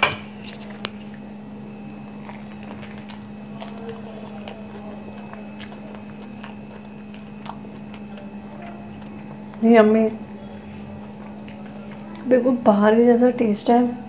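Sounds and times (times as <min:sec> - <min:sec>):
steady low hum: 0:00.0 - 0:14.0
soft mouth clicks: 0:00.4 - 0:01.2, 0:02.2 - 0:09.6.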